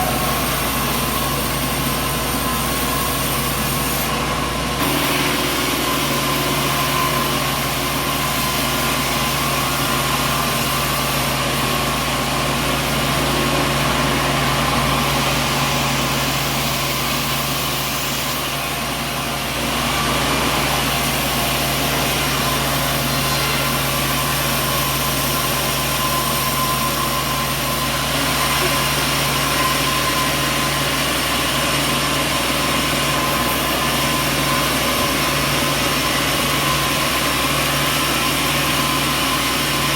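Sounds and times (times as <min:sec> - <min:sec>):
high machine whine: 0:00.0 - 0:39.9
sawmill machinery hum: 0:00.0 - 0:39.9.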